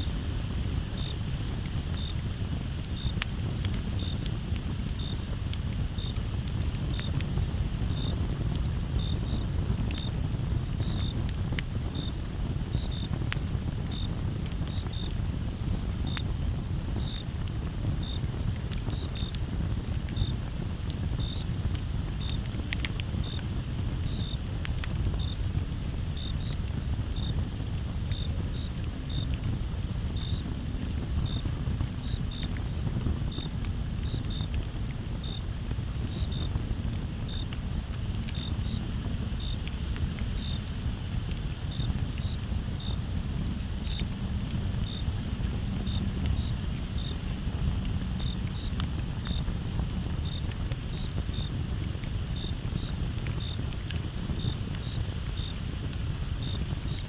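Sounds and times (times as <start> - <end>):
campfire crackling and popping: 0.0 - 57.0
crickets chirping: 0.0 - 57.0
high insect hum: 0.0 - 57.0.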